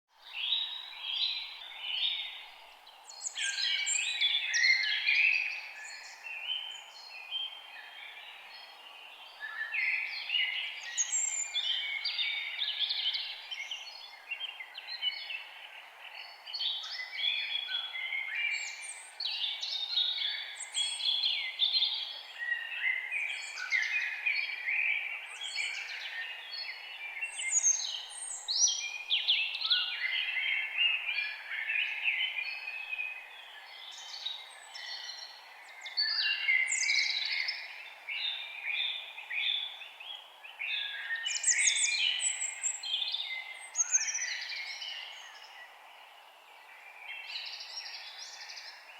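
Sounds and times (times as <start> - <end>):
forest birds singing and chirping: 0.1 - 48.9
faint background hiss: 0.2 - 48.9.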